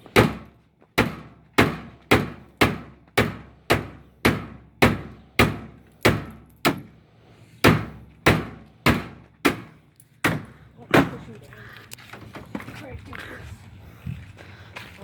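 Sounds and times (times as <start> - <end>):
hard knocks on washing machine: 1.0 - 6.8, 7.6 - 9.6.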